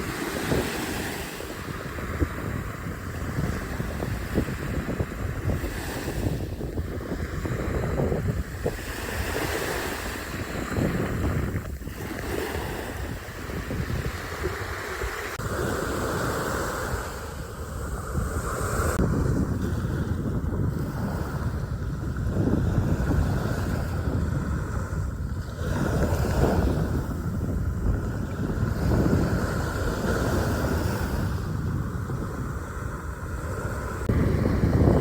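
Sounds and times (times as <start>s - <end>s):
rushing water: 0.0s - 35.0s
wind buffeting microphone: 0.0s - 35.0s.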